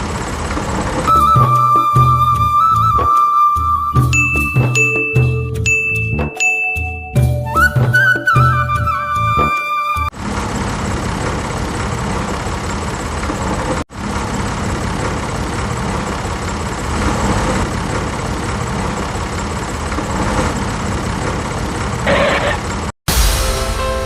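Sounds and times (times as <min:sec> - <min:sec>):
background music: 0:01.1 - 0:10.1, 0:23.1 - 0:24.0.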